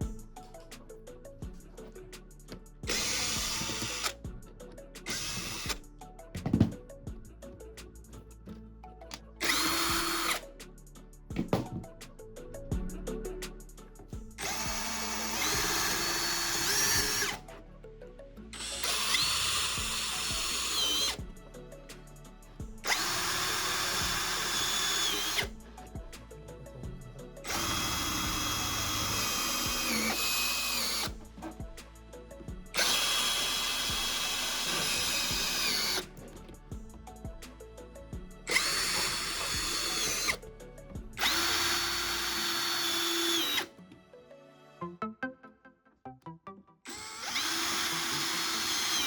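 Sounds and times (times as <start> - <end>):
electric drill whining: 1.6 - 4.2, 5.1 - 6.8, 9.1 - 10.5, 11.4 - 11.9, 14.4 - 17.5, 18.5 - 21.6, 22.7 - 31.8, 32.4 - 37.0, 38.4 - 40.4, 41.1 - 43.7, 46.9 - 49.0.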